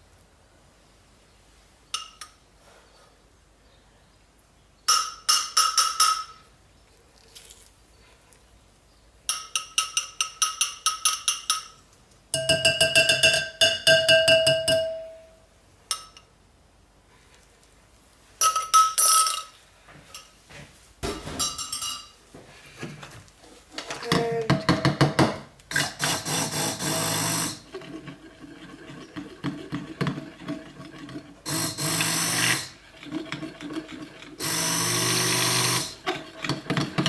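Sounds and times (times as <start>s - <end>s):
utensil clinking against container: 9.3s - 11.8s, 12.4s - 15.1s, 21.3s - 22.2s.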